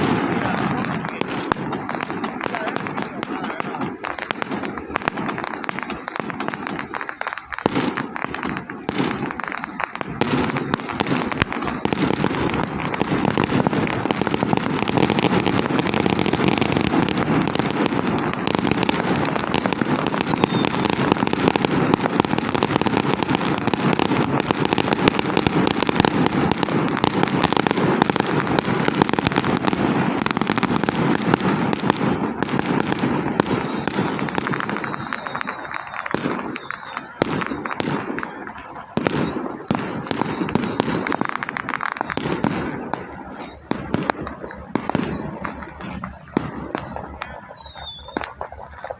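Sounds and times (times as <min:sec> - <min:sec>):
firecrackers crackling: 0:00.0 - 0:48.9.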